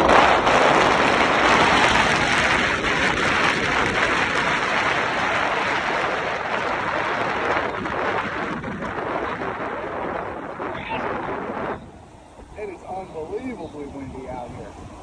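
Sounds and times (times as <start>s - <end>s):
strong wind on microphone: 0.0s - 15.0s.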